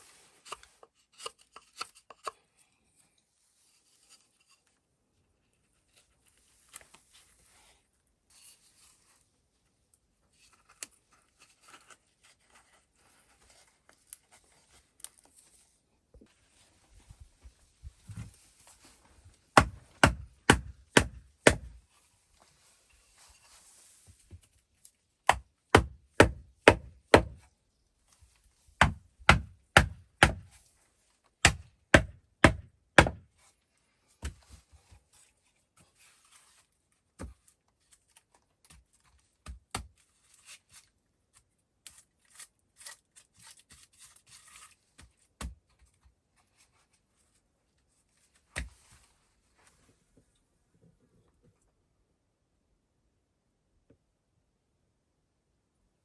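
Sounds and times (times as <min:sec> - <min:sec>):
tool striking wood: 0:19.6 - 0:21.8, 0:25.3 - 0:27.4, 0:28.8 - 0:30.5, 0:31.4 - 0:33.2.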